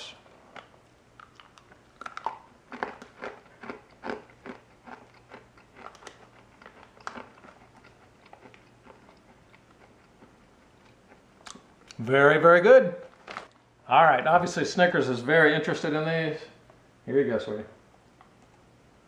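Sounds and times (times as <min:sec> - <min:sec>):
person crunching a hard biscuit: 0:00.4 - 0:12.0.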